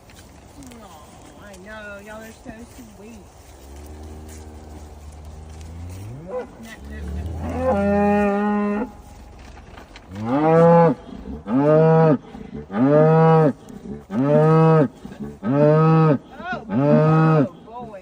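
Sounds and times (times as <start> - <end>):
cow mooing: 3.7 - 9.1, 10.1 - 17.6.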